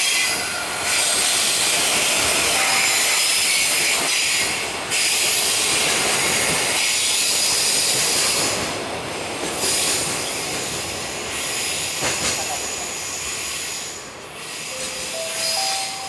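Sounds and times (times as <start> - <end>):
freight train rolling past: 0.0 - 16.0.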